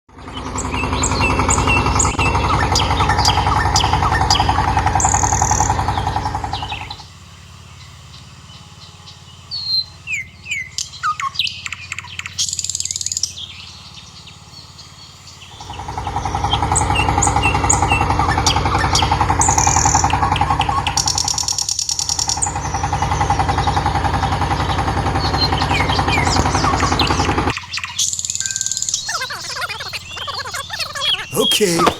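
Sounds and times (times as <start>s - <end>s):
birds chirping: 0.6s - 7.0s, 22.1s - 31.9s.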